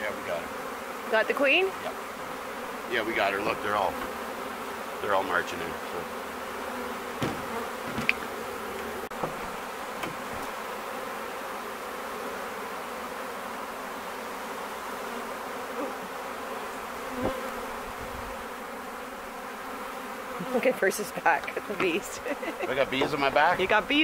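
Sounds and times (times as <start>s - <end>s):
bees buzzing: 0.0s - 24.0s
light knocks: 7.2s - 10.6s.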